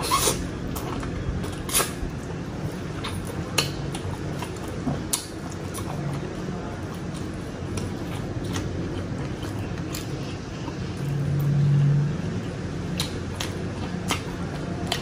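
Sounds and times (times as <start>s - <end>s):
chewing food: 0.0s - 15.0s.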